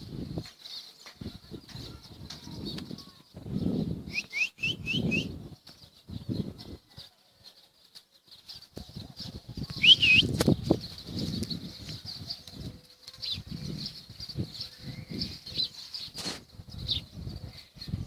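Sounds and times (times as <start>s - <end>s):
birds flapping wings: 7.9s - 14.5s
loud high bird call: 9.8s - 10.4s.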